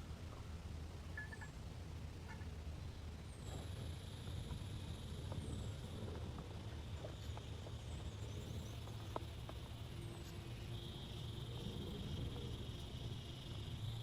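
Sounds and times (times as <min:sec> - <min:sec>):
insects chirring: 0:03.4 - 0:14.0.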